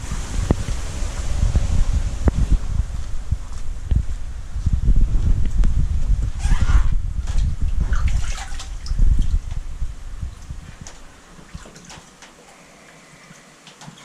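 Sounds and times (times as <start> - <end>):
water splashing and sloshing: 6.3 - 14.0.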